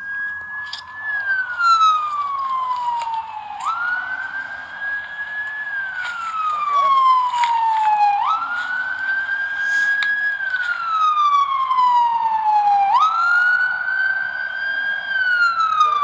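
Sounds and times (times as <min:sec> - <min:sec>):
ambulance siren wailing: 0:00.0 - 0:16.0.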